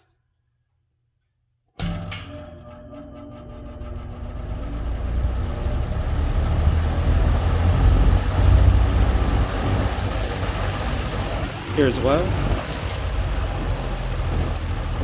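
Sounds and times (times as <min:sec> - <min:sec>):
box fan running: 0:01.8 - 0:15.0
deep motor rumble: 0:03.2 - 0:15.0.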